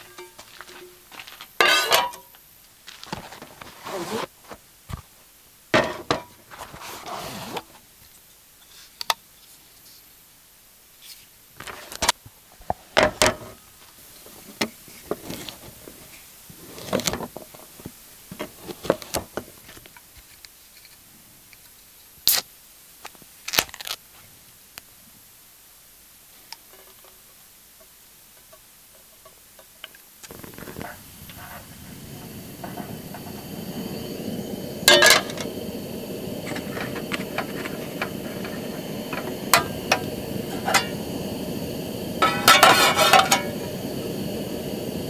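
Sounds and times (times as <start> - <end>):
cooking gear knocking and clinking: 0.0 - 0.9, 34.8 - 35.5, 36.4 - 41.0, 42.2 - 43.7
food packaging crinkling: 23.4 - 24.0.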